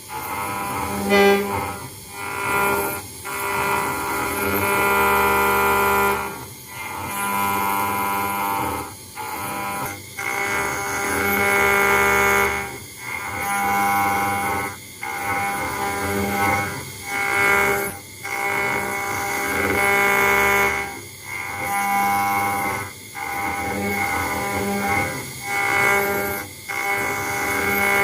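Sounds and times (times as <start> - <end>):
router spindle whining: 0.0 - 28.0.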